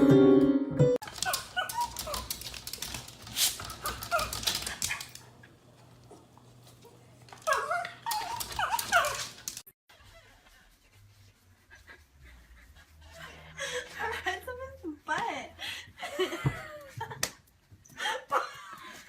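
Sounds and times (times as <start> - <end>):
rapid sharp clicks: 1.0 - 5.2
dog whimpering: 1.2 - 2.5, 7.4 - 9.4.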